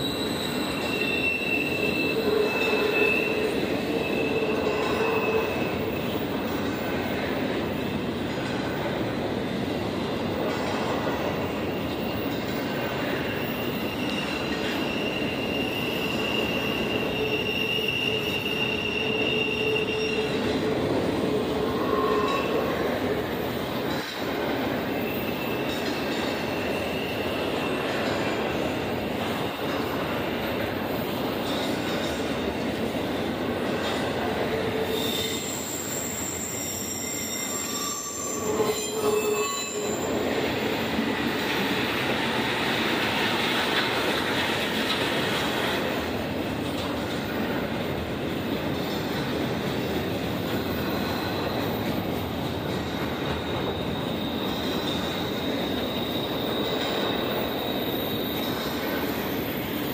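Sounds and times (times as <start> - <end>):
high-pitched wheel squeals: 0.0 - 6.2, 13.0 - 23.2, 24.8 - 30.2, 34.6 - 42.2, 53.0 - 59.9
freight train wheels on rail: 0.0 - 59.9.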